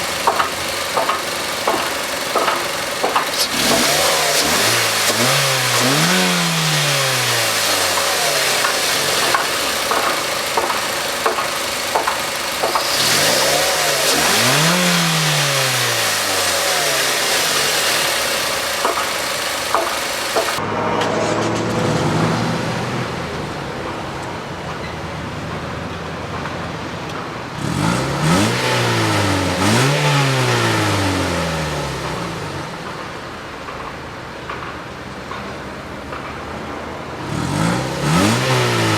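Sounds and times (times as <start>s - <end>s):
car engine revving and idling: 0.0s - 25.5s, 26.2s - 33.6s, 37.1s - 38.9s.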